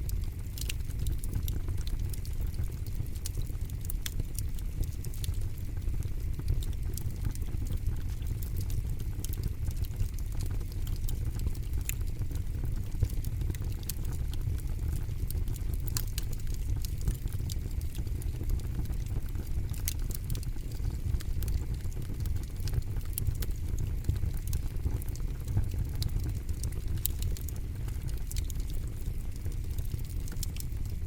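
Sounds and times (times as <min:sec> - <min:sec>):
campfire crackling and popping: 0:00.0 - 0:31.0
low rumble of flames: 0:00.0 - 0:31.0.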